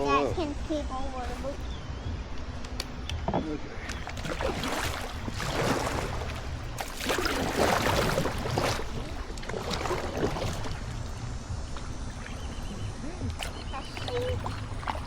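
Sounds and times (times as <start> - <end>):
low rumble: 0.3 - 15.0
paddle strokes splashing water: 3.8 - 15.0.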